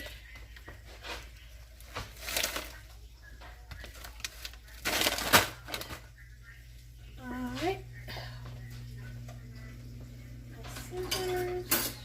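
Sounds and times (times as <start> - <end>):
kitchen items rustling and clattering: 0.0 - 12.0.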